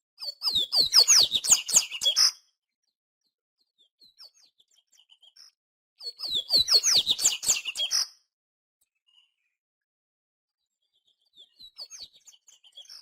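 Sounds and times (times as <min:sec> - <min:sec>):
seedeater bird singing: 0:00.2 - 0:02.4, 0:06.0 - 0:08.1.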